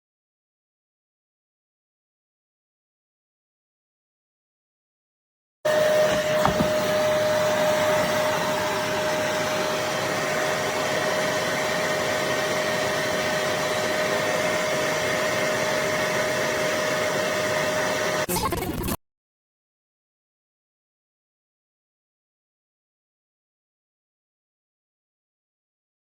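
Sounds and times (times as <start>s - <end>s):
upholstery cleaner motor suction: 5.7s - 18.3s.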